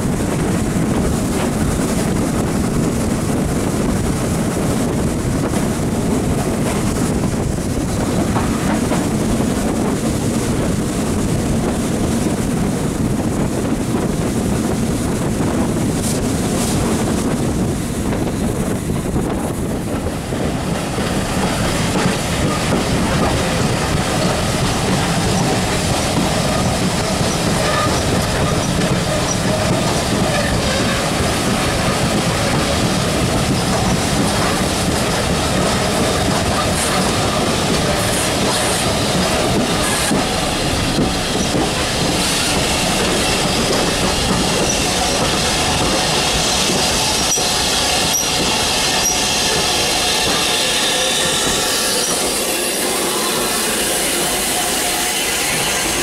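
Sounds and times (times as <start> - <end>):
train carriage rolling noise: 0.0 - 56.0
wheels clicking over rail joints: 21.9 - 51.1.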